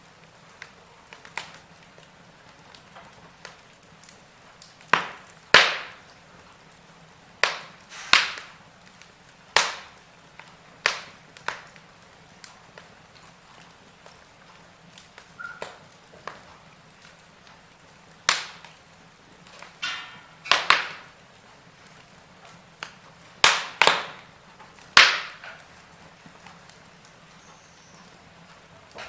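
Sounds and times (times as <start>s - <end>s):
faint steady hiss: 0.0s - 29.0s
wood fire crackling and popping: 0.0s - 29.0s.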